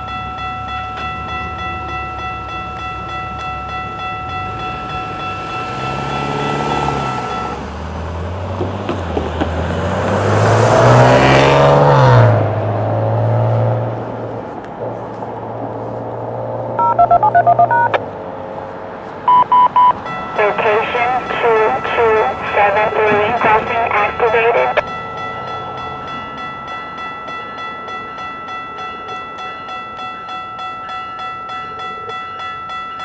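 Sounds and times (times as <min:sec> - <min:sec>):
level-crossing warning bell: 0:00.0 - 0:08.3, 0:16.8 - 0:18.0, 0:19.3 - 0:33.0
train passing at speed: 0:00.0 - 0:16.9, 0:20.0 - 0:30.2.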